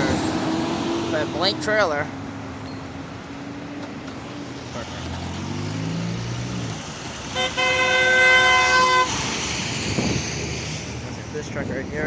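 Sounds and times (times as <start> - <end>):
passing road traffic: 0.0 - 12.0
truck engine: 0.0 - 12.0
truck horn blast: 7.3 - 9.2.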